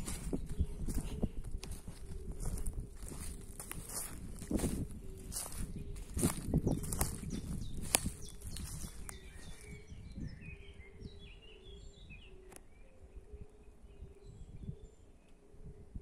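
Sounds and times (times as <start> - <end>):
footsteps in dry grass: 0.0 - 10.3
songbirds chirping and singing: 0.0 - 16.0.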